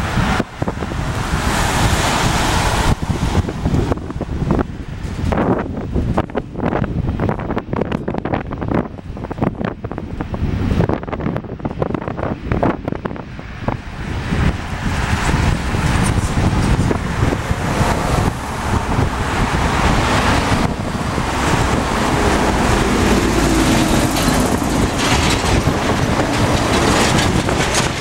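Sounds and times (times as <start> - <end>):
jet engines roaring: 0.0 - 5.6, 12.1 - 28.0.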